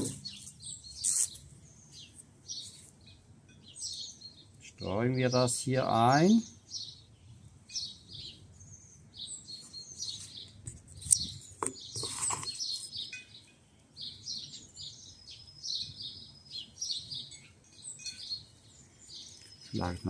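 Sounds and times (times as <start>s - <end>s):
songbirds chirping: 0.0s - 20.0s
brief rustle: 10.2s - 13.0s.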